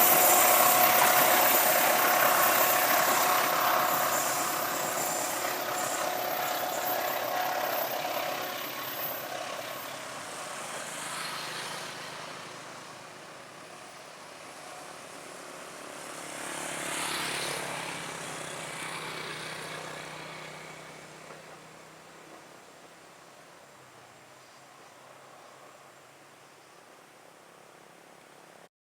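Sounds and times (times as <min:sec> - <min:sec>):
vehicle noise: 0:00.0 - 0:24.2
vehicle passing by: 0:08.4 - 0:21.7.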